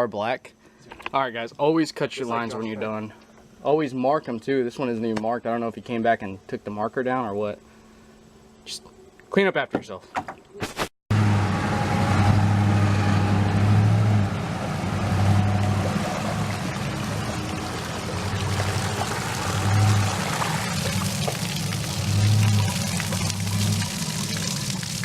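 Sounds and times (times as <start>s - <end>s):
low droning hum: 11.2s - 25.0s
water pouring and splashing: 14.5s - 25.0s.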